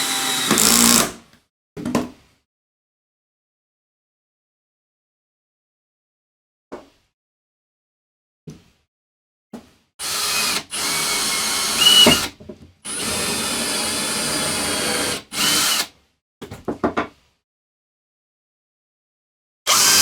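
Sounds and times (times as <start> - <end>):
power drill whirring: 0.0 - 1.2, 10.0 - 12.3, 12.9 - 15.9, 19.7 - 20.0.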